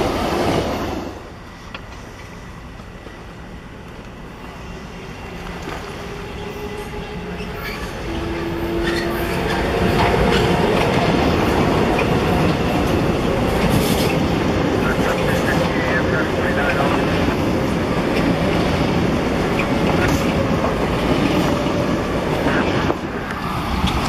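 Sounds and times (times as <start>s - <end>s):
train passing: 0.0s - 24.0s.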